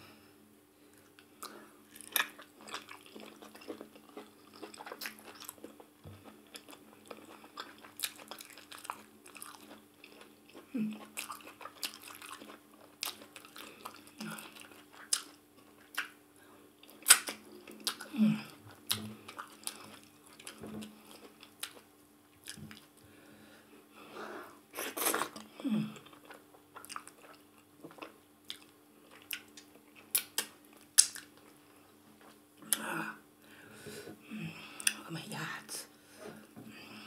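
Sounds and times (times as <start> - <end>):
faint low hum: 0.0 - 37.0
wet chewing with lip smacks: 1.9 - 16.2, 26.1 - 31.6.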